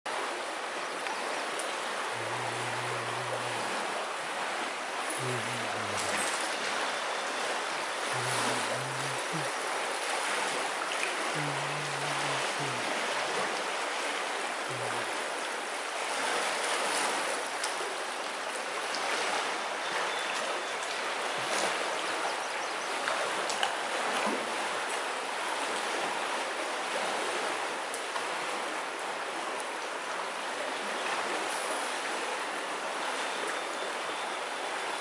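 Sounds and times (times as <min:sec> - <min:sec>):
stream rushing over rocks: 0:00.1 - 0:35.0.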